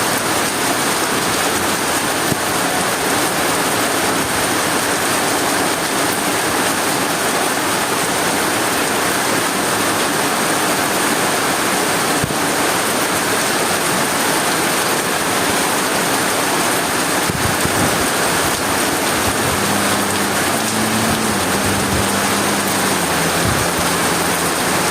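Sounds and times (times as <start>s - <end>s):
heavy rain in strong wind: 0.0s - 24.9s
low steady hum: 18.5s - 24.9s.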